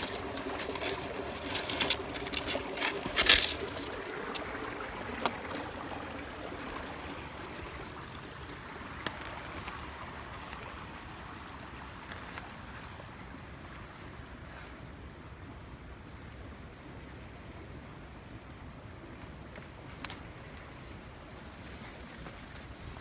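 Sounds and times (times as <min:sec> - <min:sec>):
sharp knocks and rustles: 0:00.0 - 0:04.5
river water rushing: 0:00.0 - 0:12.0.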